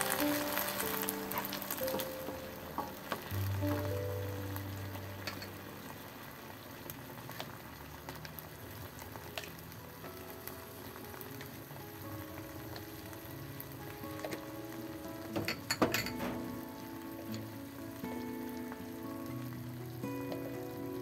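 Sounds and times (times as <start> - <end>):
food sizzling in a wok: 0.0 - 21.0.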